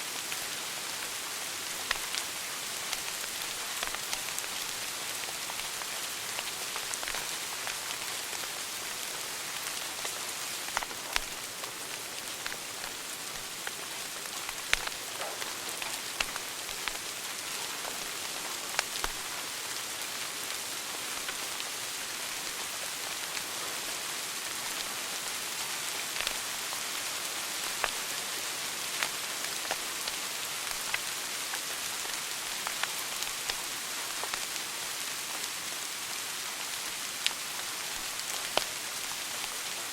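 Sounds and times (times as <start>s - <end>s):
wood fire hissing and crackling: 0.0s - 39.9s
fire pops: 12.4s - 17.1s.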